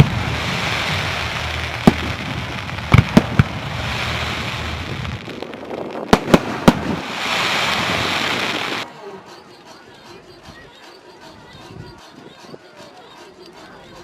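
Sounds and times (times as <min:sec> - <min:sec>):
fireworks bangs: 0:00.0 - 0:08.8
steady hiss: 0:00.0 - 0:08.8.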